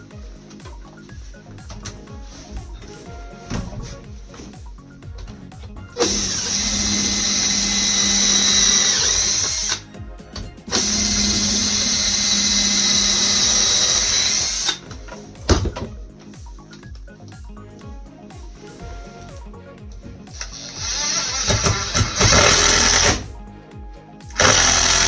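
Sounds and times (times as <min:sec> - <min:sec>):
electric drill whining: 0:06.0 - 0:15.8, 0:20.3 - 0:23.4, 0:24.3 - 0:25.0.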